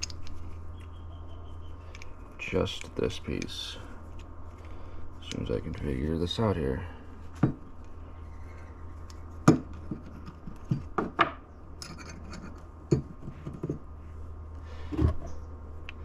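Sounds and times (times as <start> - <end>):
metal parts clicking and knocking: 0.0 - 1.0, 1.7 - 5.5, 8.4 - 13.9
low hum: 0.0 - 16.0.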